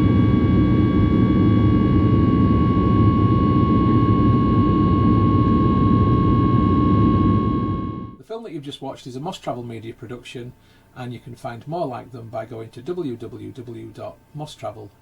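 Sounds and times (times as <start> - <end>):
high engine whine: 0.0 - 8.2
jet engine rumble: 0.0 - 8.2.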